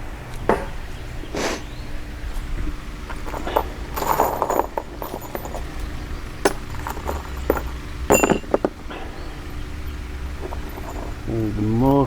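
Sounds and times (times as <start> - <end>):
metal hardware clinking: 3.0 - 11.8.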